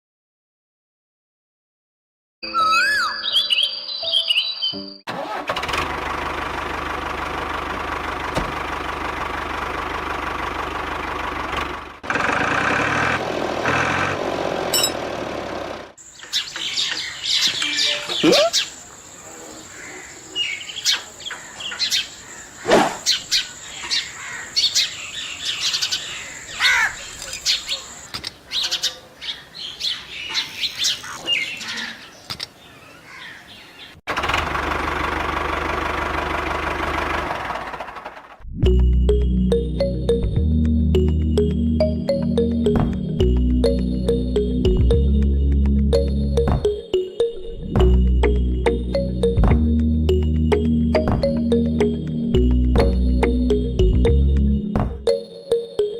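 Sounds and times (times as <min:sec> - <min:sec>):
birds chirping: 0:02.4 - 0:05.0, 0:16.0 - 0:34.0
engine running: 0:05.1 - 0:16.0, 0:34.1 - 0:47.0, 0:47.8 - 0:55.1.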